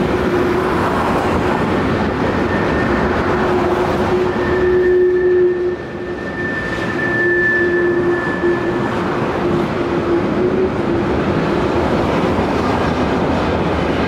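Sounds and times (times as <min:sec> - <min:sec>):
steel wheels rumbling on rail: 0:00.0 - 0:14.0
wheel squeal: 0:02.2 - 0:10.8.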